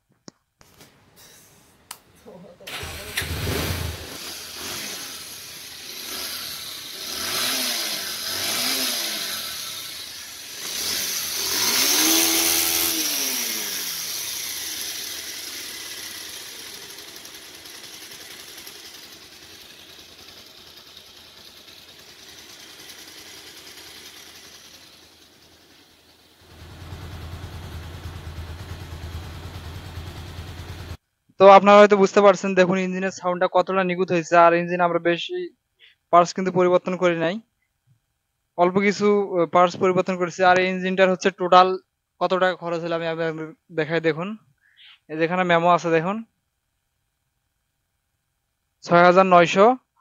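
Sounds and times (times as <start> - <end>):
motorcycle engine revving and idling: 2.8 - 31.0.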